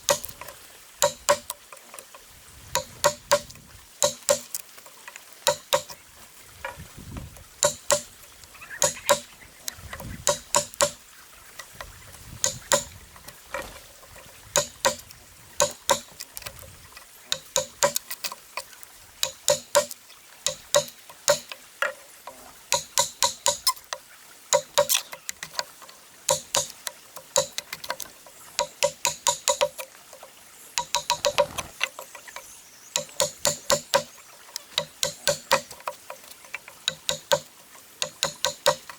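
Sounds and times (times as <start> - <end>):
hammer tapping on metal: 1.0 - 1.6, 2.8 - 4.6, 5.4 - 6.0, 7.6 - 8.1, 10.2 - 11.0, 14.6 - 16.2, 17.3 - 18.1, 19.2 - 21.6, 22.7 - 23.7, 34.8 - 35.7, 36.8 - 38.9.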